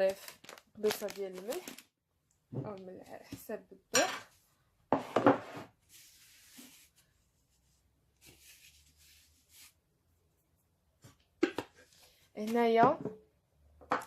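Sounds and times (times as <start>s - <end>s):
flour rustling in a mixing bowl: 5.8s - 9.9s.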